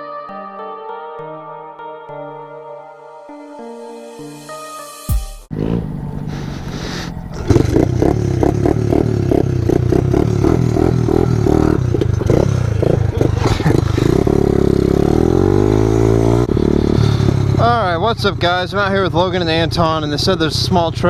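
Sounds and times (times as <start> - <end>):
pit bike engine revving: 5.5 - 21.0.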